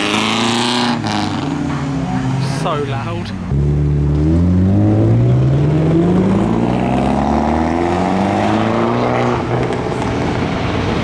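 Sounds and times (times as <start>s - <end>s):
car engine accelerating hard: 0.0s - 1.7s, 3.5s - 11.0s.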